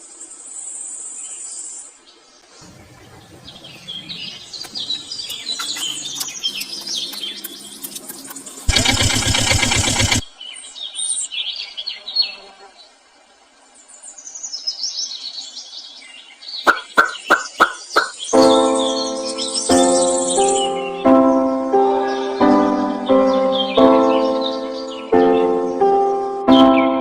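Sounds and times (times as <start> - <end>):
small birds chirping: 0.3 - 13.0, 13.6 - 21.1
sharp clicks: 4.6 - 10.3
loud buzzing burst: 7.5 - 10.3.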